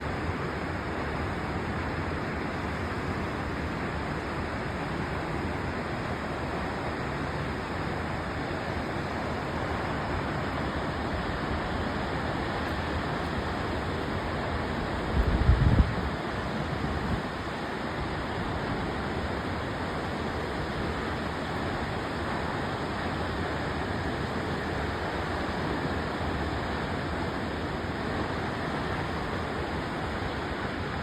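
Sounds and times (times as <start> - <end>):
waterfall rushing: 0.0 - 31.0
wind buffeting microphone: 8.6 - 19.0.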